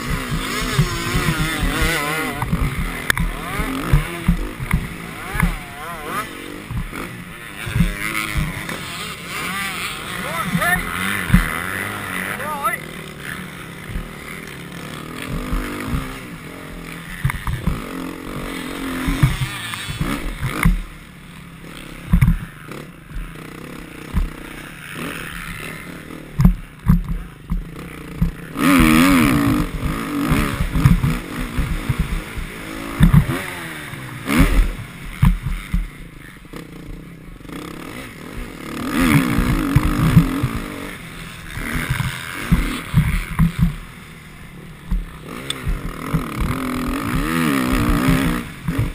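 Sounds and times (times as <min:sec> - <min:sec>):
low thumps and knocks: 0:00.0 - 0:05.6, 0:06.6 - 0:07.0, 0:07.6 - 0:08.7, 0:18.9 - 0:20.9, 0:22.0 - 0:22.5, 0:29.6 - 0:33.4, 0:34.4 - 0:36.0, 0:39.3 - 0:40.6, 0:41.5 - 0:43.9, 0:44.8 - 0:48.9
motocross bike engine revving: 0:00.0 - 0:48.9.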